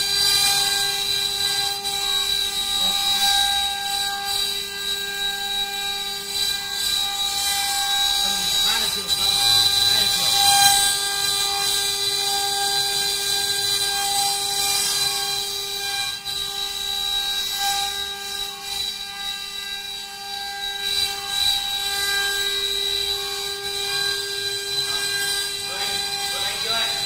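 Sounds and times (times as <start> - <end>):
spindle whine: 0.0 - 27.0.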